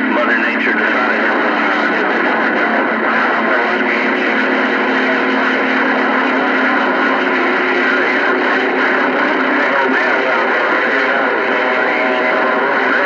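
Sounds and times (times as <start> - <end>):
radio static: 0.0 - 13.0
weak distant radio signals: 0.0 - 13.0.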